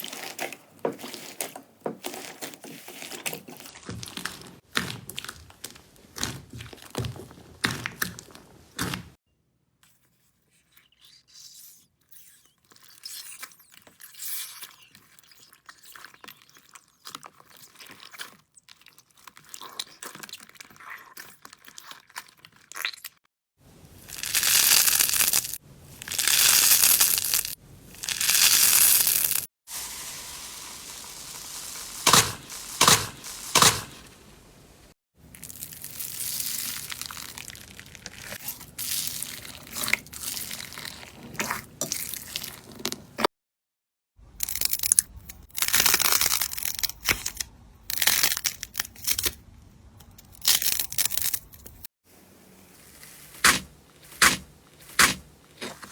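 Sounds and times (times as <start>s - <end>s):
slime squishing: 0.0s - 9.2s, 24.0s - 43.2s, 52.4s - 55.9s
slime hissing: 26.4s - 34.9s, 53.2s - 55.9s.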